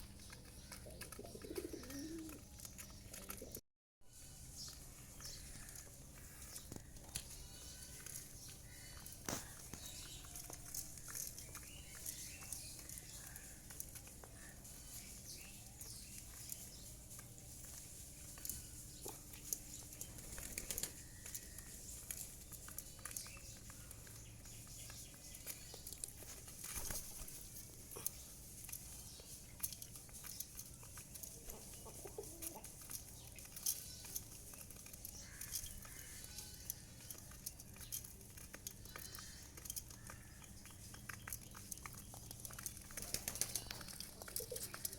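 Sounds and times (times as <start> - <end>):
pigeons pecking clicks: 0.0 - 3.6, 4.5 - 44.9
low pigeon calls: 0.1 - 3.6, 31.0 - 32.8, 42.5 - 44.9
wings flapping: 43.0 - 43.8.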